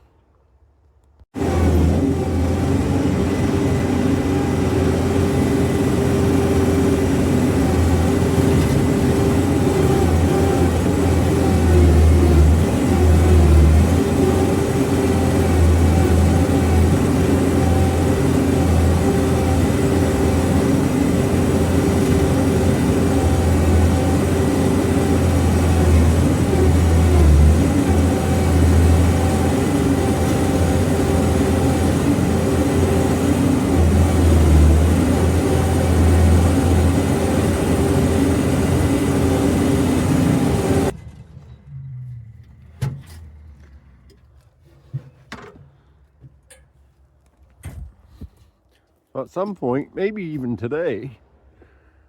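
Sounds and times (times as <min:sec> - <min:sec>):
diesel engine running: 0:01.3 - 0:41.7.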